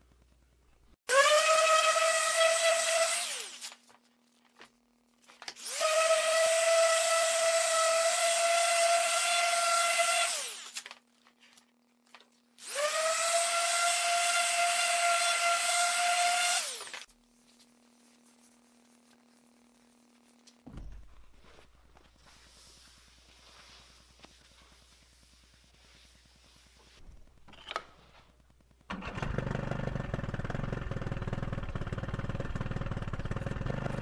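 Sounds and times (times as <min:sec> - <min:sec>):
power tool whining: 0:01.1 - 0:03.8, 0:05.6 - 0:10.8, 0:12.6 - 0:17.1.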